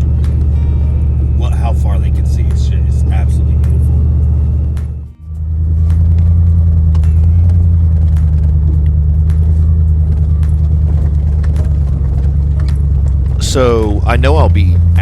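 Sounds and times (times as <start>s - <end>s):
vehicle driving rumble: 0.0s - 15.0s
small clicks and rattles: 5.9s - 13.4s.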